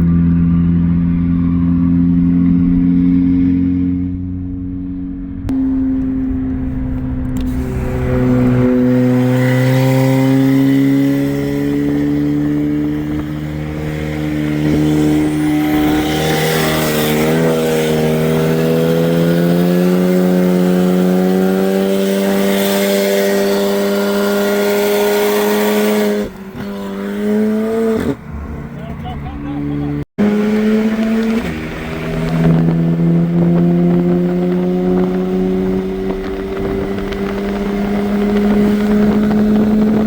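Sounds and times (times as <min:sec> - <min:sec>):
car engine under full throttle: 0:00.0 - 0:40.0
road noise: 0:00.0 - 0:40.0
wind noise: 0:02.4 - 0:28.8, 0:30.2 - 0:40.0.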